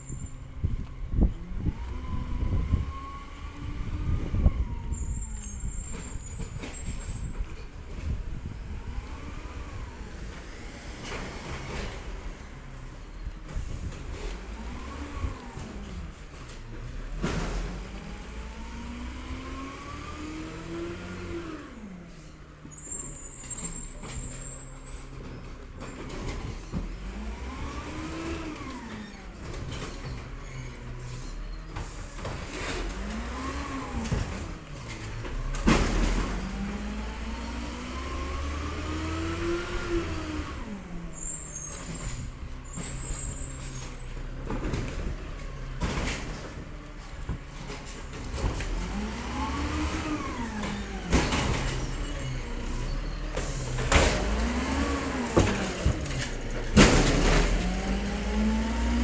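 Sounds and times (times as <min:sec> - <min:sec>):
diesel garbage truck running: 0:00.0 - 0:59.0.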